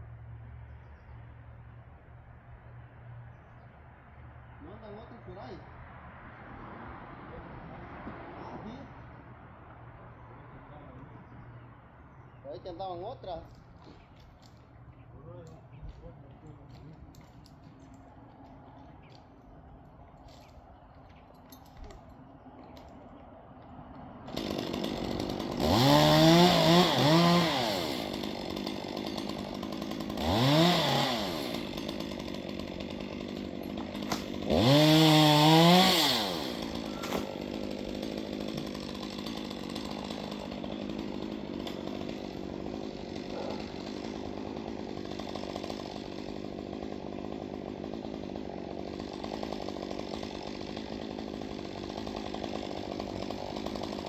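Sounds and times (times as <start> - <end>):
chainsaw engine revving: 23.6 - 54.0.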